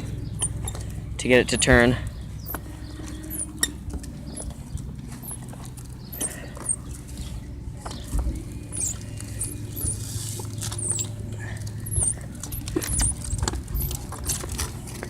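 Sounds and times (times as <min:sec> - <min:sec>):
crank linkage clicks and knocks: 0:00.0 - 0:00.9, 0:02.4 - 0:04.6, 0:07.8 - 0:15.0
handle squeaks: 0:00.0 - 0:15.0.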